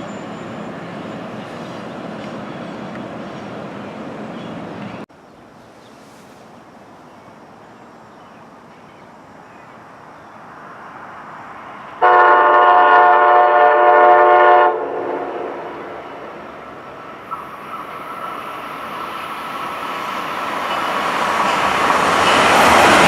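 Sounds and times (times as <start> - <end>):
train rumbling: 0.0 - 23.0
train air horn chord: 12.0 - 15.8.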